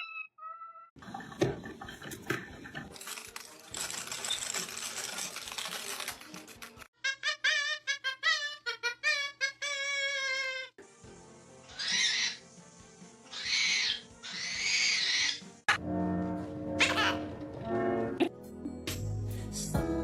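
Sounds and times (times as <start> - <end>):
parrot screeching: 7.0 - 10.7, 11.7 - 12.4, 13.3 - 15.5.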